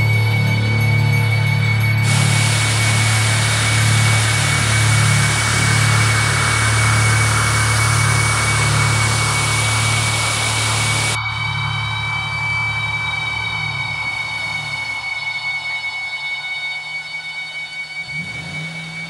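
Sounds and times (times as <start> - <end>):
rushing hiss: 2.0 - 11.2
vehicle engine running: 2.0 - 11.2.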